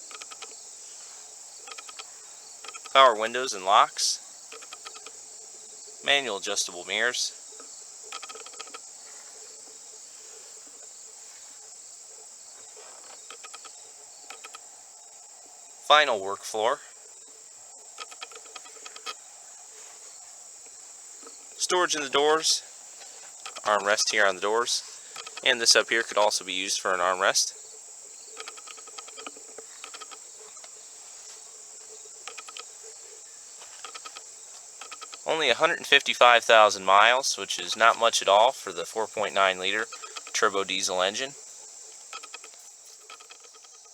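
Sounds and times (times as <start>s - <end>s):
faint clicks: 0.0s - 0.6s, 1.6s - 3.1s, 4.5s - 5.2s, 7.6s - 8.9s, 12.9s - 14.6s, 17.9s - 19.2s, 23.0s - 26.3s, 28.3s - 30.8s, 32.2s - 32.8s, 33.6s - 35.3s, 37.5s - 43.9s
crickets chirring: 0.0s - 43.9s.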